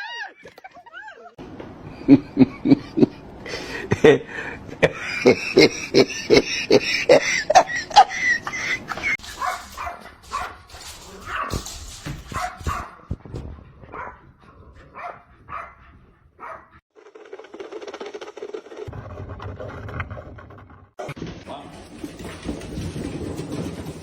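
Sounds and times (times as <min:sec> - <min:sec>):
dog barking and yipping: 0:09.2 - 0:16.8.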